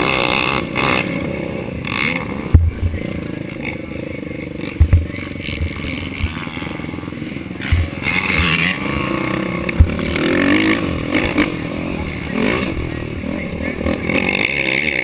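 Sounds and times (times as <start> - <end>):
atv engine revving: 0.0 - 15.0
sharp thumps: 2.3 - 3.2, 4.7 - 6.8, 7.6 - 12.9.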